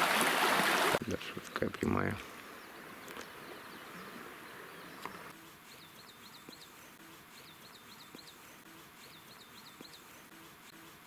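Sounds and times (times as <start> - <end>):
running water hiss: 0.0 - 1.0
songbird chirping: 1.2 - 11.0.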